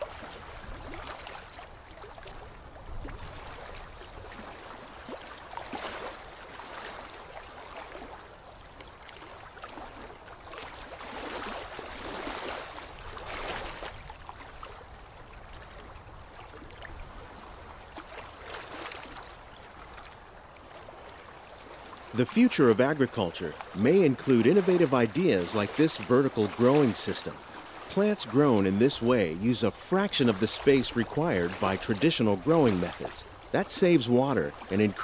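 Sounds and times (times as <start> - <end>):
trickling water: 0.0 - 35.0.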